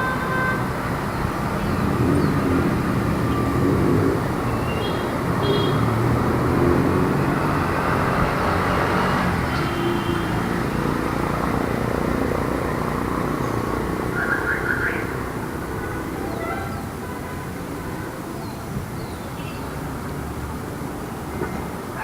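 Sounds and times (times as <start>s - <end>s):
passing vehicles rumble: 0.0s - 22.0s.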